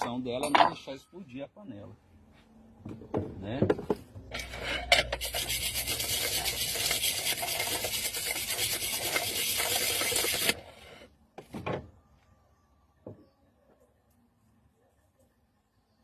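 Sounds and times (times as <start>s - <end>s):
rasping scrape: 4.3s - 11.1s.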